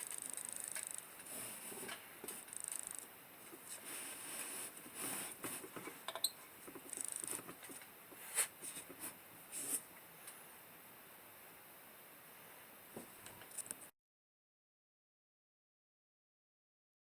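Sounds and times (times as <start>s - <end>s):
small objects scratching and tapping: 0.0s - 7.9s.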